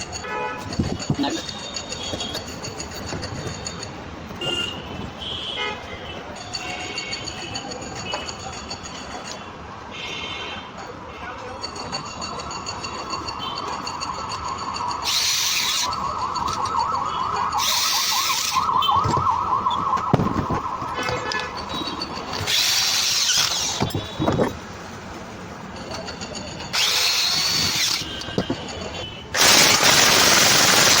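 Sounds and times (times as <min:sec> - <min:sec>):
wavering high squeal: 0:11.7 - 0:24.6
power tool bursts: 0:15.0 - 0:15.9, 0:22.3 - 0:24.2, 0:26.8 - 0:28.6, 0:29.4 - 0:31.0.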